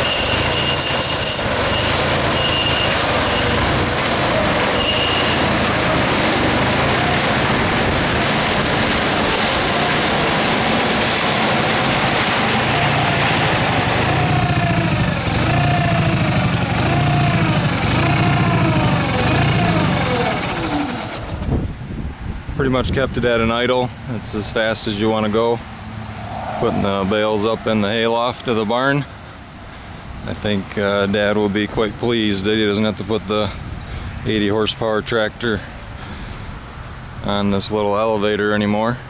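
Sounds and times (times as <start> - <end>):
garden tractor engine running: 0.0 - 21.8.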